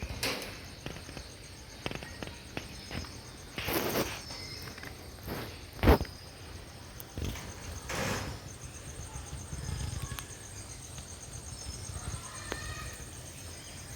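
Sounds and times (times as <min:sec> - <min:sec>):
high insect chirping: 0:00.0 - 0:13.9.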